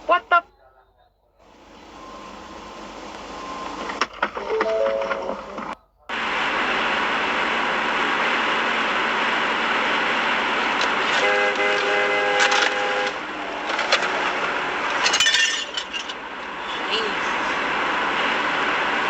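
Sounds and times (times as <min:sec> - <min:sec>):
traffic noise: 0:00.0 - 0:19.0
car horn blast: 0:11.0 - 0:13.3.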